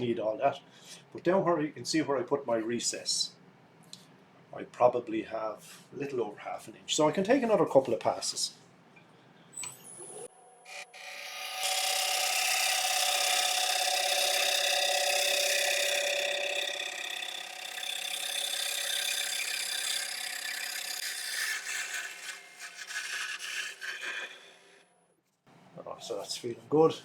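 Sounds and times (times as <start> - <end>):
lathe humming: 10.7 - 24.6
gouge scraping wood bowl: 20.9 - 24.6.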